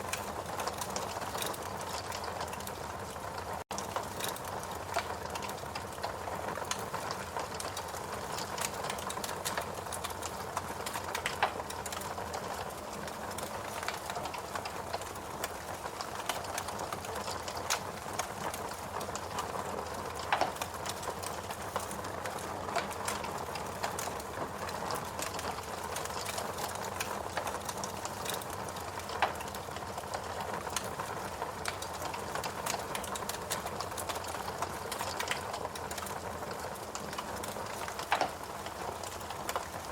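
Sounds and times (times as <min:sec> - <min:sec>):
fire popping: 0:00.0 - 0:03.2, 0:03.8 - 0:39.9
fireplace crackling: 0:00.0 - 0:39.9.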